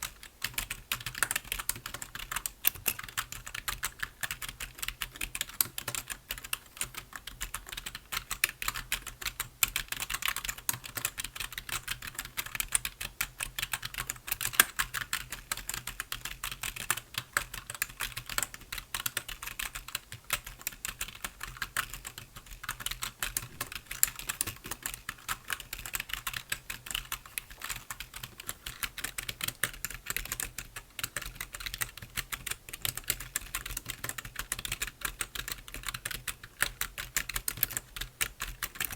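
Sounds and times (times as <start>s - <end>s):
typing on computer keyboard: 0.0s - 38.9s.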